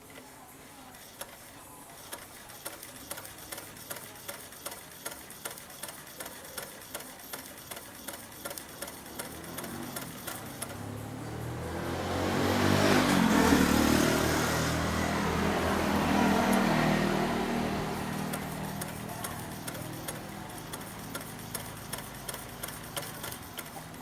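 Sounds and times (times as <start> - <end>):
sewing machine clicking: 1.0 - 10.9, 15.2 - 24.0.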